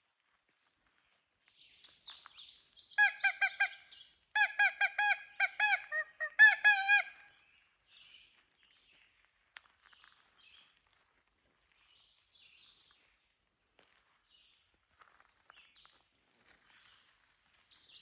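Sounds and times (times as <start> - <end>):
woodpecker locator call: 3.0 - 7.2.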